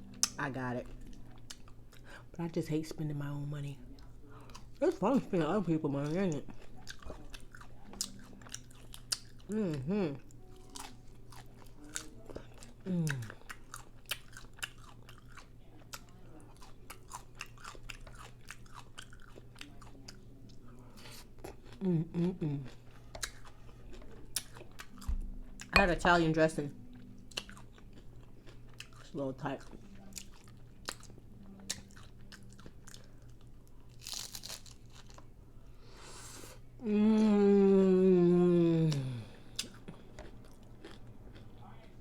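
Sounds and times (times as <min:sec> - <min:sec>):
person chewing crunchy taco: 0:04.4 - 0:04.8, 0:06.0 - 0:25.8, 0:26.9 - 0:35.4, 0:38.8 - 0:42.0.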